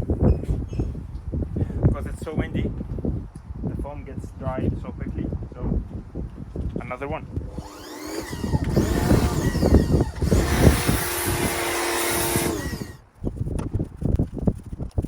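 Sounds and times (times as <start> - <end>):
pressure washer motor whine: 7.5 - 13.0.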